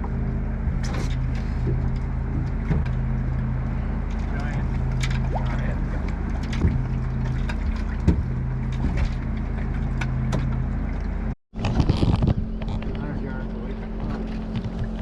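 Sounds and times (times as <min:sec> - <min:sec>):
boat engine running: 0:00.0 - 0:15.0
wind: 0:00.0 - 0:15.0
water splashing: 0:04.0 - 0:10.4.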